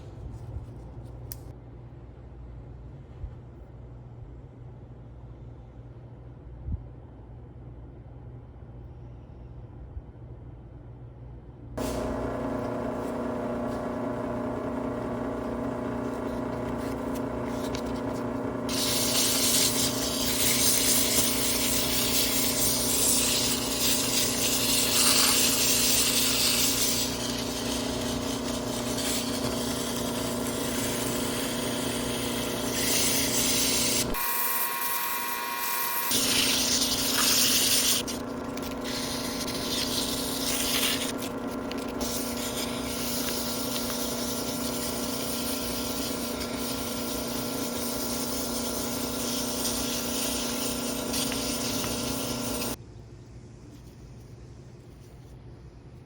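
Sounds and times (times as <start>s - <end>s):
power tool motor hum: 11.8s - 52.8s
tool grinding against metal: 11.8s - 52.8s.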